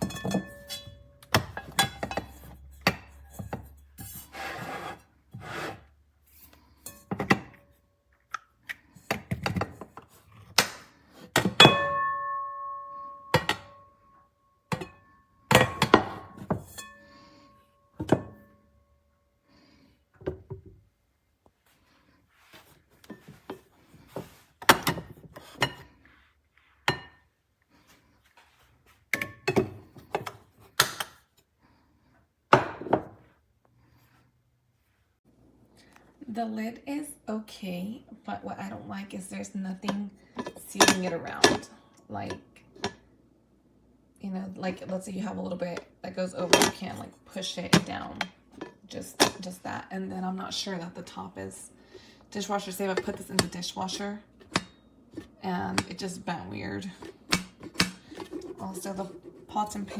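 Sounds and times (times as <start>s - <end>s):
pots and pans knocking: 11.4s - 13.8s
metallic ring: 11.6s - 14.3s.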